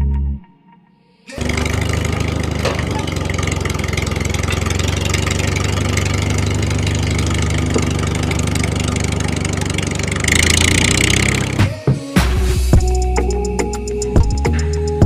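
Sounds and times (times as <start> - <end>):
small engine running: 1.3 - 11.8.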